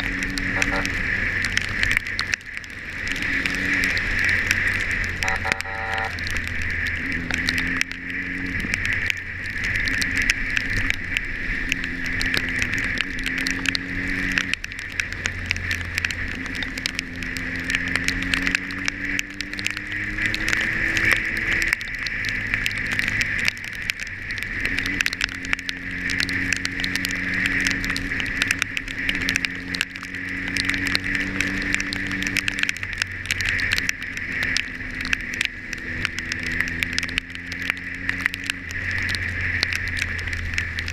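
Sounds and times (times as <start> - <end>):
motorcycle engine accelerating: 0.0 - 2.1
wind and wet road hiss: 0.0 - 40.9.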